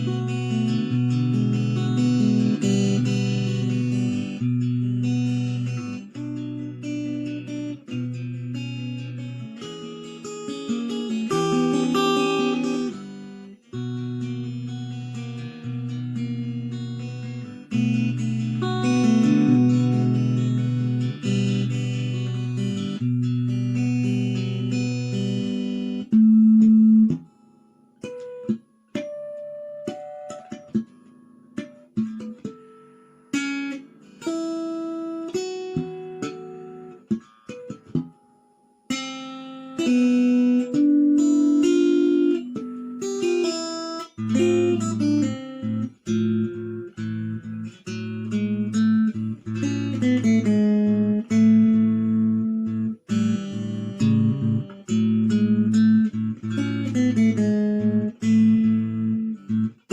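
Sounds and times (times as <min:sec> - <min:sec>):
acoustic guitar playing: 0:00.0 - 0:59.9.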